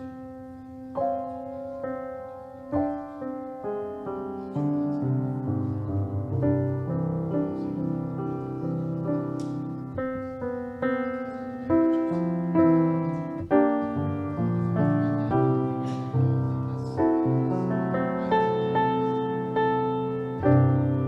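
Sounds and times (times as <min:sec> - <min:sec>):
piano playing sustained chords: 0:00.0 - 0:21.0.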